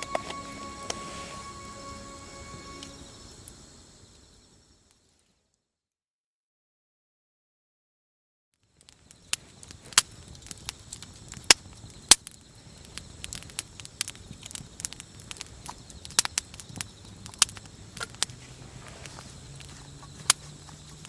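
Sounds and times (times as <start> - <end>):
low hiss: 0.0 - 5.2
campfire crackling and popping: 8.7 - 21.0.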